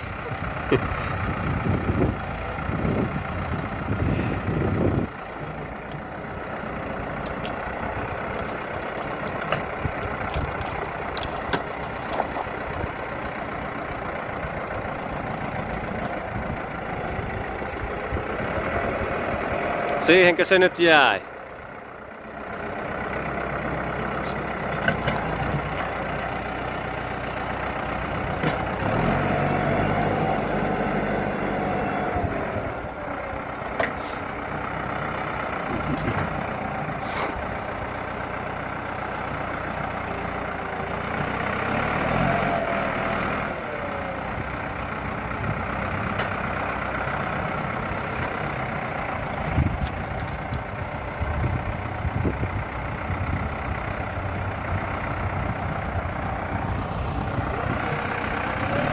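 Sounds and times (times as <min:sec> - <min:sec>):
tractor diesel engine revving: 0:00.0 - 0:58.9.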